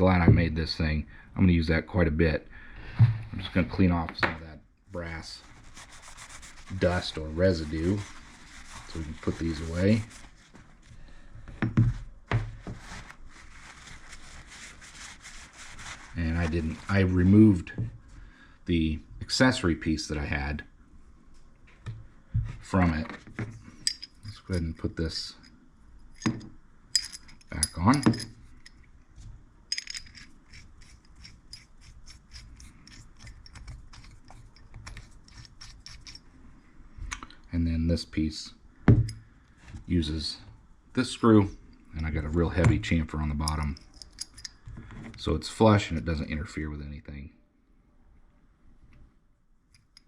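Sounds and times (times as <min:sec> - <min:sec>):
towel rubbing on metal: 0:05.4 - 0:10.6, 0:12.6 - 0:17.6
metal clink: 0:23.8 - 0:24.6, 0:26.1 - 0:28.8, 0:29.7 - 0:32.4, 0:43.5 - 0:44.6.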